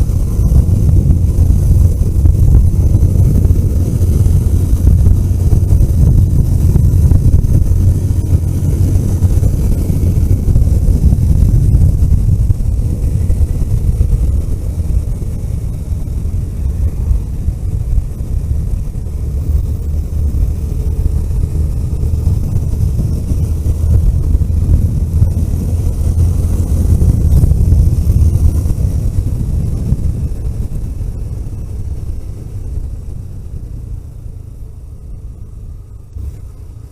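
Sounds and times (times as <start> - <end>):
vehicle engine and road rumble: 0.0 - 36.9.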